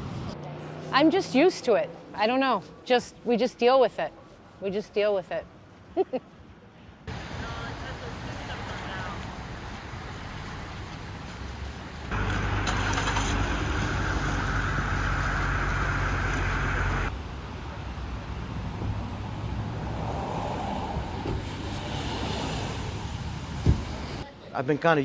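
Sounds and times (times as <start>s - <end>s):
traffic hum: 0.0s - 25.0s
vehicle engine rumble: 7.1s - 24.2s.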